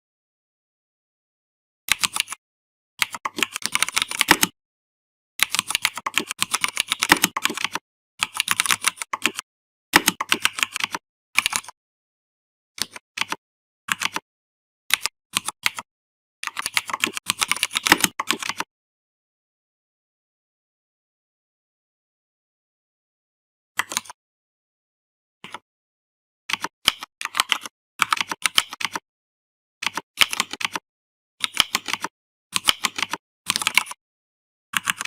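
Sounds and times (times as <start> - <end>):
computer keyboard typing: 1.9 - 2.4, 3.0 - 4.6, 5.4 - 9.4, 10.0 - 11.8, 12.8 - 14.2, 14.9 - 18.7, 23.8 - 24.2, 26.5 - 29.0, 29.8 - 30.8, 31.4 - 34.0, 34.8 - 35.0.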